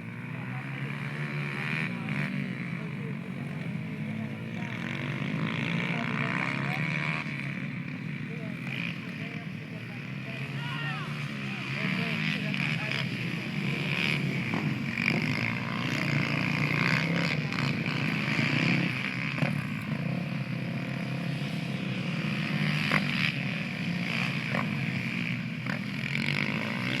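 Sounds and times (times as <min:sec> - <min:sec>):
motorbike engines revving: 0:00.0 - 0:27.0.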